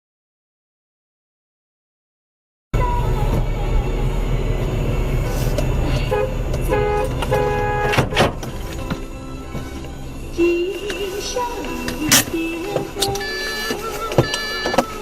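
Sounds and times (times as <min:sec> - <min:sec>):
engine and road rumble: 0:02.8 - 0:15.0
car horn honking: 0:05.9 - 0:08.5, 0:13.0 - 0:15.0.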